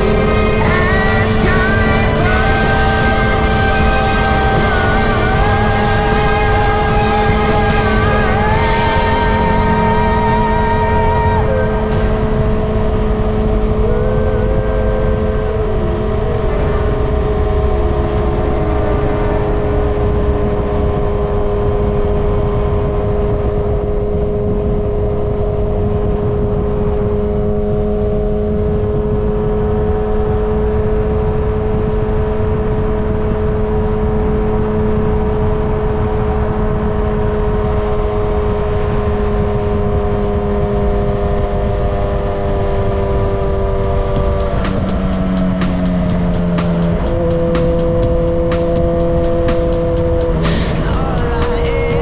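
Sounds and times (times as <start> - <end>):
motorcycle engine running: 0.0 - 24.7, 40.0 - 52.0.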